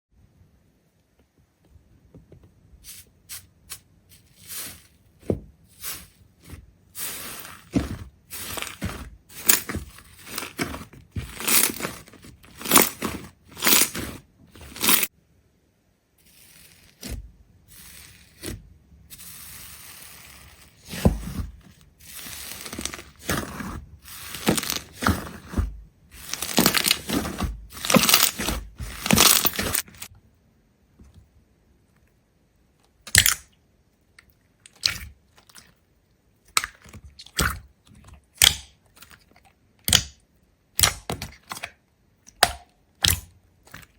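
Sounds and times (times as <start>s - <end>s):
brittle crackling and crunching: 4.1s - 15.1s, 16.2s - 30.1s.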